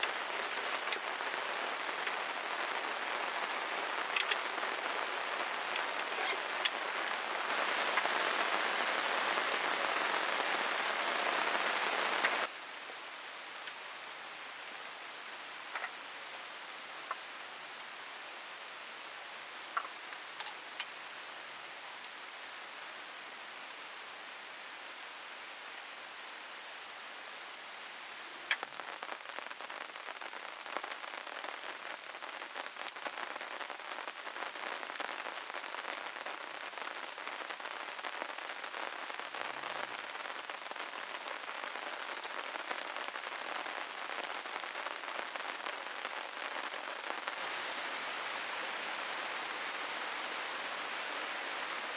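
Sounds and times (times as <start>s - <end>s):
raindrops tapping on plastic sheeting: 0.0s - 14.1s, 15.5s - 17.4s, 19.6s - 21.1s, 28.5s - 51.9s
rain falling: 0.0s - 51.9s.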